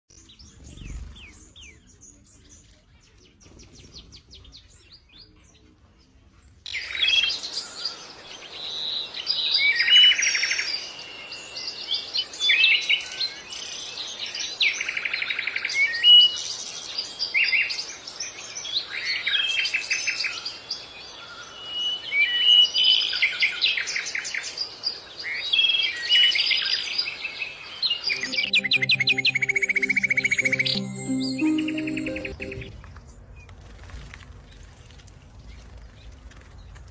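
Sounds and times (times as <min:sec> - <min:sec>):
birdsong chirps and trills: 0:00.1 - 0:05.6.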